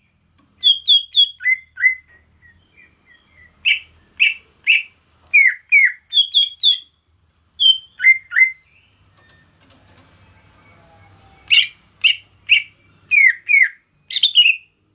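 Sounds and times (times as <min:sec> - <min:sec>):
bird singing whistled notes: 0:00.0 - 0:07.0, 0:07.6 - 0:09.5, 0:10.6 - 0:14.8.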